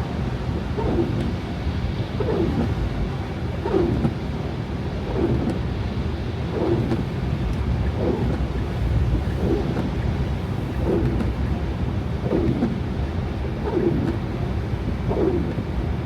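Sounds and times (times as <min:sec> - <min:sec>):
road and engine rumble: 0:00.0 - 0:16.0
windshield wipers sweeping: 0:00.7 - 0:01.5, 0:02.2 - 0:04.3, 0:05.0 - 0:05.7, 0:06.5 - 0:12.9, 0:13.5 - 0:14.2, 0:15.1 - 0:15.7.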